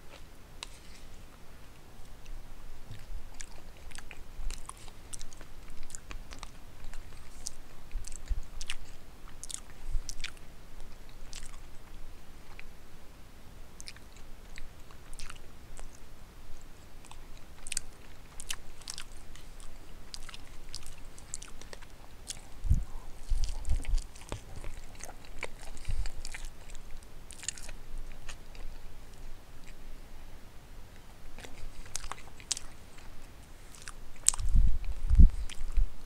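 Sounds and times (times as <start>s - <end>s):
person chewing food: 0.0s - 12.7s, 13.8s - 29.8s, 30.9s - 36.0s
wet mouth clicks: 2.2s - 10.4s, 13.8s - 16.0s, 17.0s - 29.8s, 33.7s - 35.9s.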